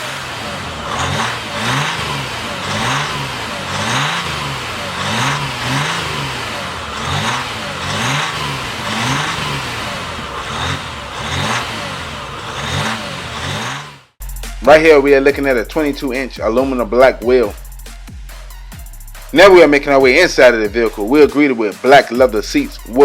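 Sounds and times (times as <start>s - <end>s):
diesel engine revving in blips: 0.0s - 14.2s.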